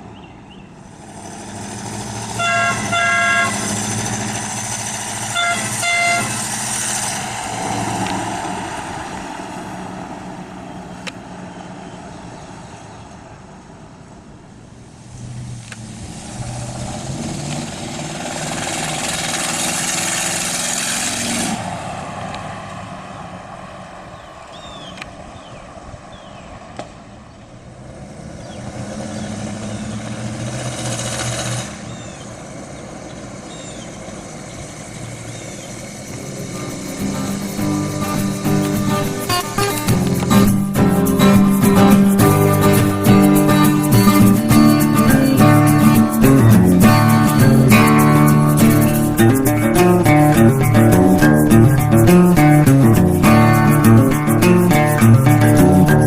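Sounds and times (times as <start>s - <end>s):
truck engine running: 0.8s - 12.2s, 15.5s - 24.8s, 27.5s - 56.0s
truck horn beeps: 2.2s - 4.2s, 5.2s - 6.6s
tyre noise: 32.8s - 56.0s.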